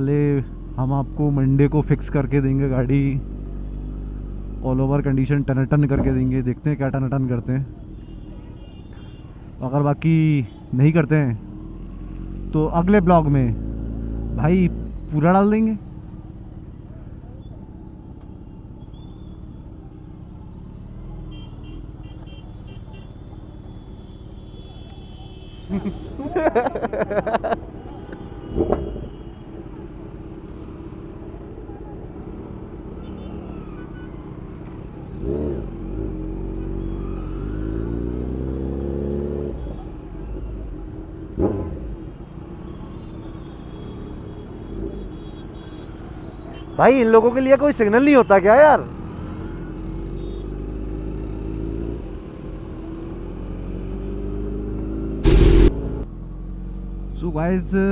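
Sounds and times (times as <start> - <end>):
city traffic rumble: 0.0 - 57.7
sharp brief loud sound: 55.2 - 56.0
motor vehicle running: 55.2 - 56.5.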